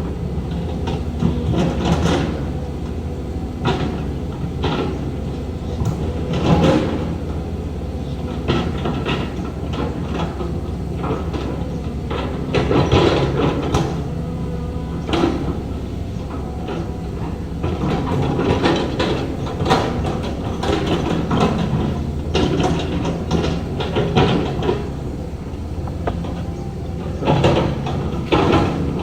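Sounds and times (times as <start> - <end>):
diesel earthmover running: 0.0 - 29.0
metallic clanks and scraping: 8.4 - 29.0.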